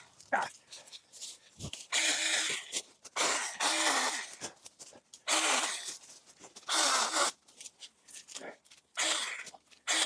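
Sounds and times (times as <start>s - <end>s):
mini chainsaw short bursts: 1.9s - 4.3s, 5.3s - 5.9s, 6.7s - 7.4s, 9.0s - 10.0s.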